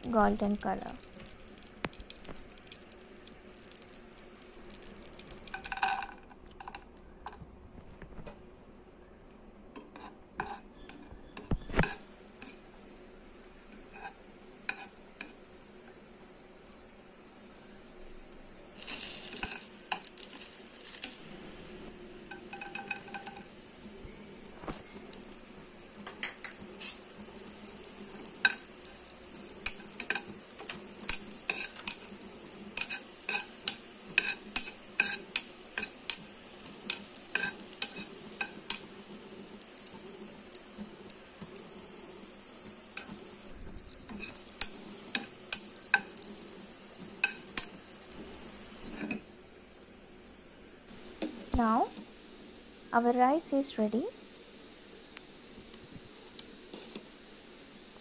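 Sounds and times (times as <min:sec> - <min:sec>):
nuts sizzling in a pan: 0:00.0 - 0:07.4, 0:09.8 - 0:58.0
utensil scraping a pan: 0:13.8 - 0:15.4, 0:29.6 - 0:32.1, 0:32.8 - 0:36.2, 0:36.9 - 0:38.9, 0:48.7 - 0:49.3.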